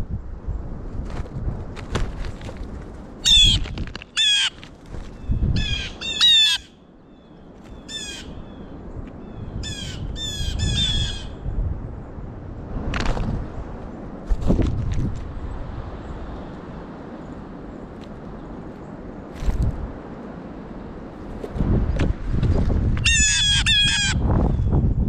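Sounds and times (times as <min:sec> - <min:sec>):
blue jays jeer calls: 0:23.1 - 0:24.2.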